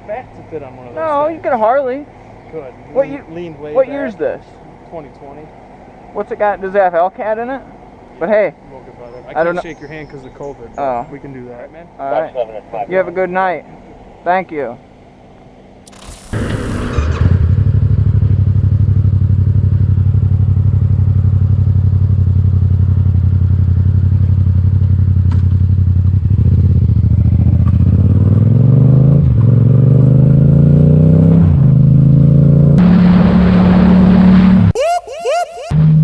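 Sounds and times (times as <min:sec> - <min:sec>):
motorcycle engine accelerating: 0:15.9 - 0:34.8.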